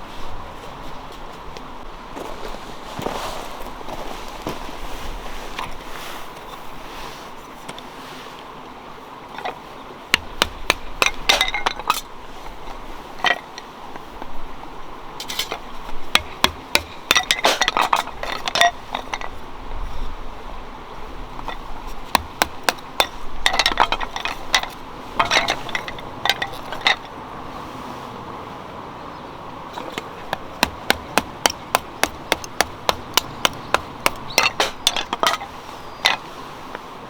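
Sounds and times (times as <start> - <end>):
hard objects clinking and knocking: 10.2 - 12.1, 16.2 - 19.3, 21.4 - 27.1, 29.8 - 36.3.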